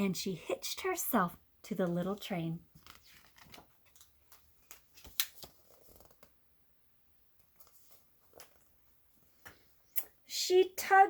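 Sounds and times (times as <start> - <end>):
paper rustling: 2.7 - 6.4, 7.4 - 8.8
book page clicks: 2.8 - 6.3.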